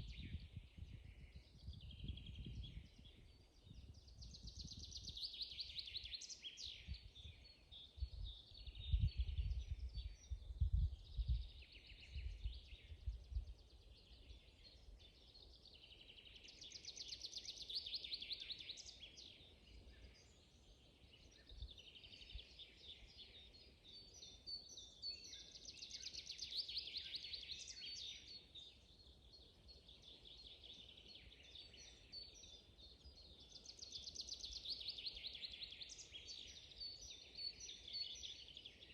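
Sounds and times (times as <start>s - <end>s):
bird chirps: 0.0s - 38.9s
songbirds singing: 0.0s - 38.9s.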